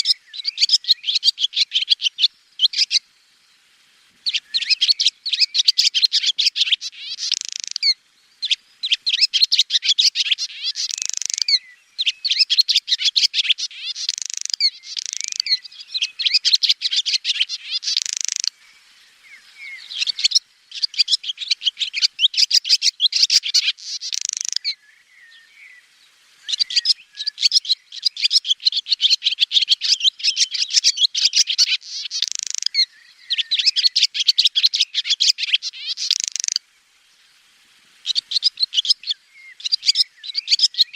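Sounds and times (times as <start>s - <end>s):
swallow twittering: 0.0s - 3.0s, 4.2s - 25.7s, 26.5s - 36.6s, 38.0s - 40.9s.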